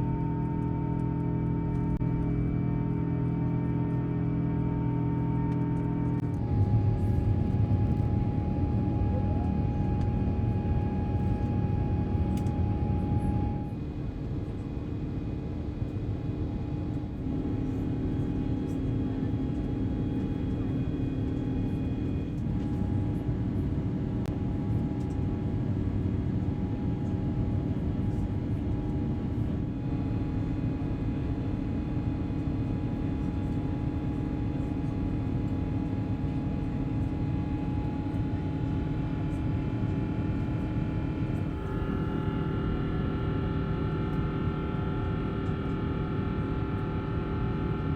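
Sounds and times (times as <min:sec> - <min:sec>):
jet engines from cabin: 0:00.0 - 0:47.9.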